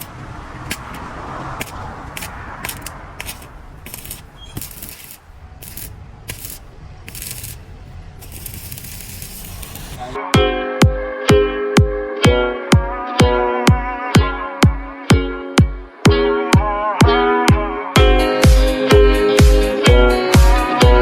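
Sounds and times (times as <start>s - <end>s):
low steady rumble: 0.0s - 10.2s
arc welding crackling hiss: 1.6s - 10.2s.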